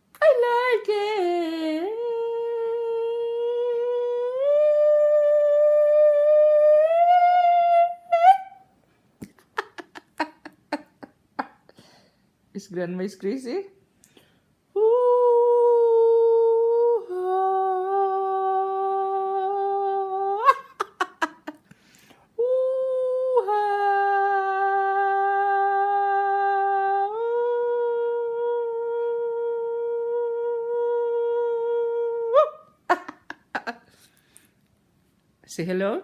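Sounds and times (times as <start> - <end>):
person humming: 0.2 - 8.6, 14.8 - 21.6, 22.4 - 33.9.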